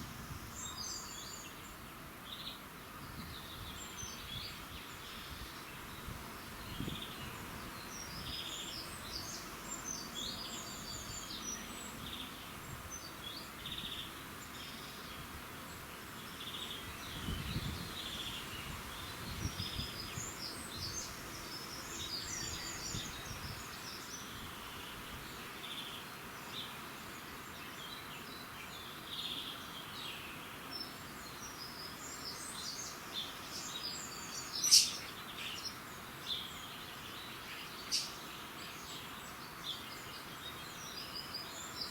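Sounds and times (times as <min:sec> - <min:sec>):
background hiss: 0:00.0 - 0:41.9
small birds chirping and trilling: 0:00.0 - 0:41.9
sharp loud bird chirp: 0:34.6 - 0:35.1.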